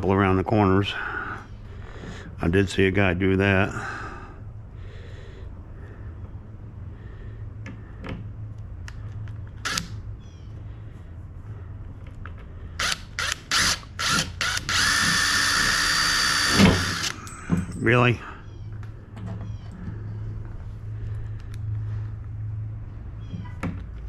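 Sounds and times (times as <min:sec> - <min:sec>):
power drill running: 0:12.8 - 0:17.2.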